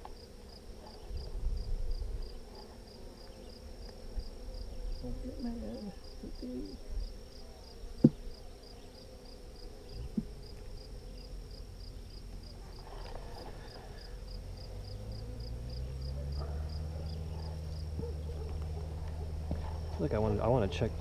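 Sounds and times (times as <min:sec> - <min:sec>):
honeybees buzzing: 0:00.0 - 0:21.0
knocks on beehive: 0:08.0 - 0:08.3.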